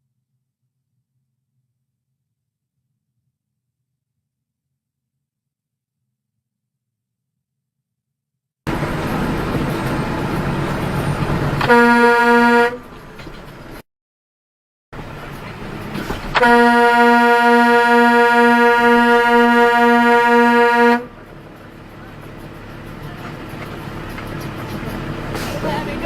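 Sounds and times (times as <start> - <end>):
road noise: 8.7 - 13.8, 15.0 - 26.0
car horn honking: 11.6 - 12.9, 16.3 - 21.2.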